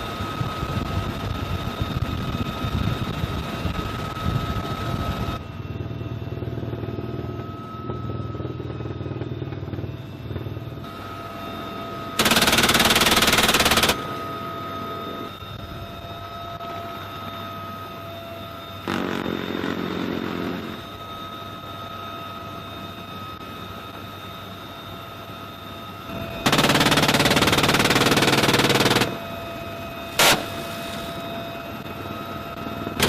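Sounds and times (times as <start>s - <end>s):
helicopter turbine and rotor: 0.0s - 33.0s
machine gun burst: 12.2s - 14.0s, 26.4s - 29.2s, 30.2s - 30.6s.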